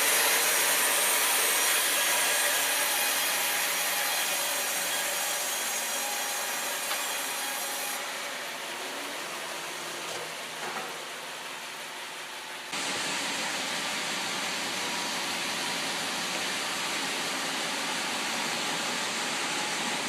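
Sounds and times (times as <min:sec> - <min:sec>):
saw rasping through log: 0:00.0 - 0:08.0.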